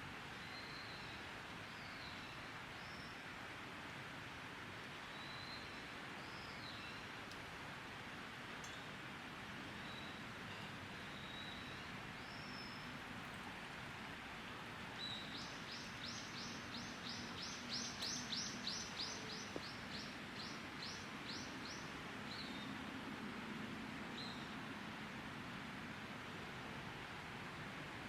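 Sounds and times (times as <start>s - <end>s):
songbird singing: 0.3s - 3.2s, 5.0s - 7.1s, 9.6s - 13.7s, 14.6s - 22.8s, 24.1s - 24.6s.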